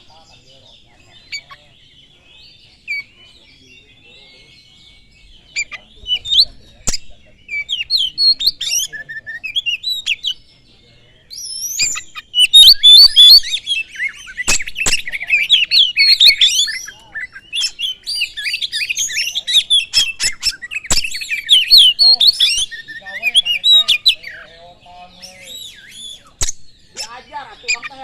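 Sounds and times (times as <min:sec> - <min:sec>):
bird singing whistles and chirps: 0:00.0 - 0:28.0
sharp click: 0:14.5 - 0:15.1, 0:20.9 - 0:21.2, 0:26.4 - 0:26.6.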